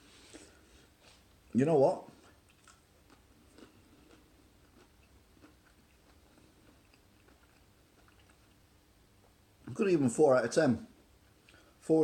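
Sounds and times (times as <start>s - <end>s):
faint chewing: 2.1s - 9.4s, 11.3s - 11.7s.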